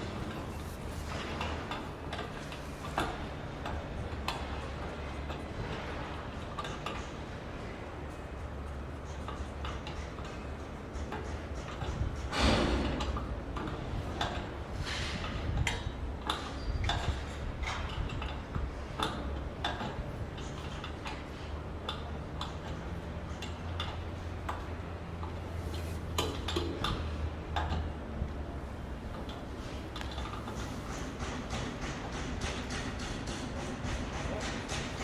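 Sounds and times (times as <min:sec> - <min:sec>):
sharp clicks and knocks: 0:08.7 - 0:28.0, 0:29.1 - 0:35.0.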